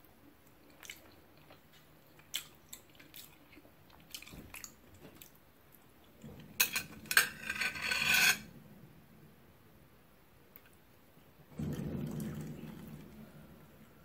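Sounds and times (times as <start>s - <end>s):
person chewing food: 0.5s - 5.4s
scraping and rubbing: 6.3s - 8.6s.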